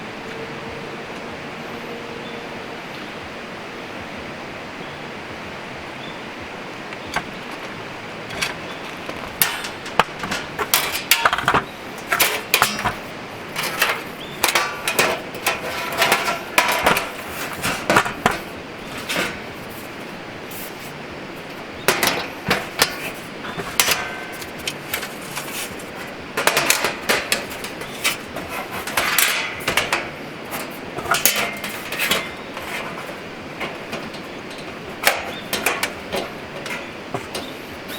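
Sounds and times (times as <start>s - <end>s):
steady hiss: 0.0s - 37.9s
metal parts clanking: 6.9s - 37.9s.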